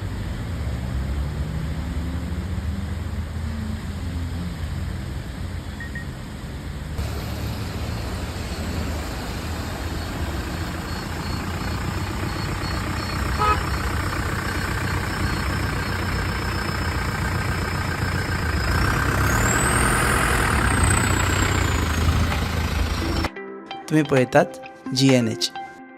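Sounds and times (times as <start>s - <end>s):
vehicle engines rumbling: 0.0s - 23.3s
short pitched tone: 7.2s - 23.3s.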